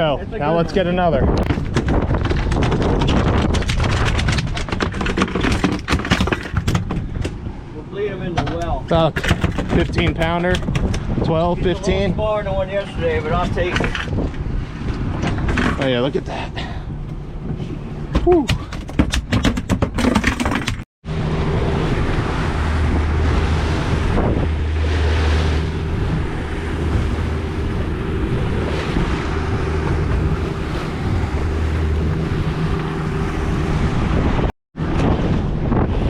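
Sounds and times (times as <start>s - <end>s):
wind buffeting microphone: 0.0s - 20.0s, 21.1s - 36.0s
knocks and clicks: 8.4s - 11.1s, 18.2s - 20.8s
boat motor humming: 14.1s - 18.8s, 20.7s - 36.0s
water rushing past hull: 21.0s - 36.0s.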